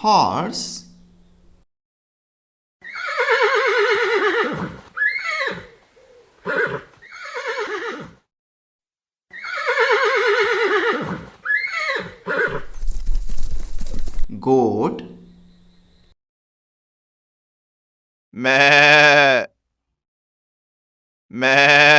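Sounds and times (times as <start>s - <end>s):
horse whinnying: 2.8s - 8.2s, 9.3s - 12.8s, 21.4s - 21.9s.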